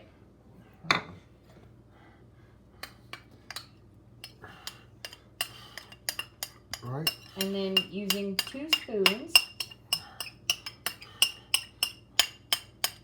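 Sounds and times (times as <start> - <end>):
utensils clinking against bowl: 3.1 - 13.0.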